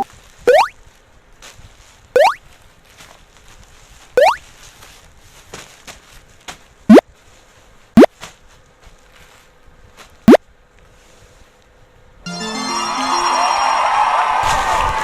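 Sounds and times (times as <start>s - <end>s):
rising bloop pop effects: 0.0s - 0.7s, 2.2s - 2.4s, 4.2s - 4.4s
music: 12.3s - 15.0s.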